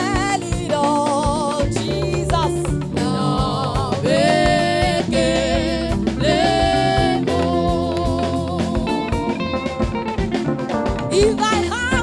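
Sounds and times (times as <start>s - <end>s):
band with guitar and drums: 0.0s - 12.0s
voices singing long notes: 2.9s - 10.2s.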